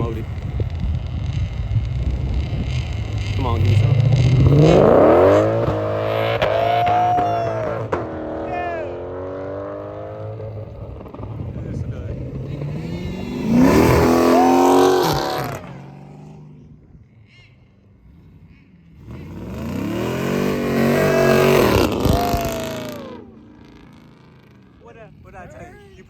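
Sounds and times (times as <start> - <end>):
car engine revving hard: 1.8 - 10.5, 12.1 - 16.5, 19.0 - 23.6.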